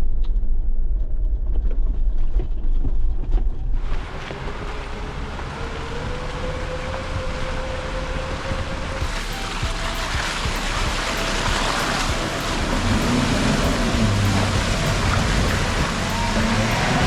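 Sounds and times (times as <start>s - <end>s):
off-road vehicle rumble: 0.0s - 17.0s
wind buffeting microphone: 3.8s - 17.0s
held whine: 5.4s - 17.0s
steady hiss: 8.9s - 17.0s.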